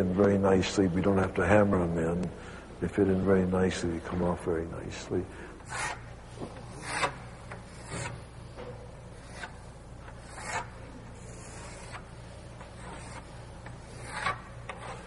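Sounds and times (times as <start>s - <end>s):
steady low hum: 0.0s - 15.0s
short scraping strokes: 5.6s - 8.3s, 9.2s - 15.0s.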